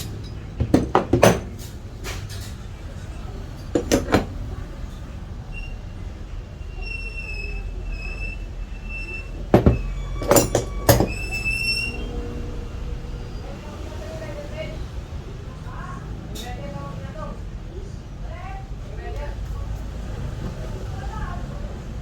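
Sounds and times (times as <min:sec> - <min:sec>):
metal tools clinking and knocking: 0:00.0 - 0:02.6, 0:03.6 - 0:04.3, 0:09.5 - 0:11.5
steady low hum: 0:08.6 - 0:16.1.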